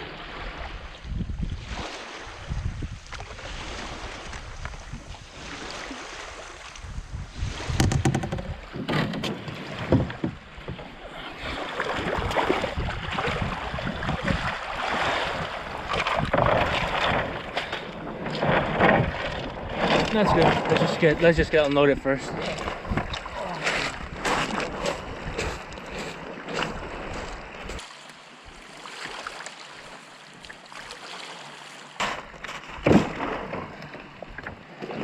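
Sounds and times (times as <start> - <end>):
wind on microphone: 0.0 - 27.8
water at the shore: 0.0 - 35.0
canoe knocks and clatters: 7.5 - 27.8, 32.0 - 35.0.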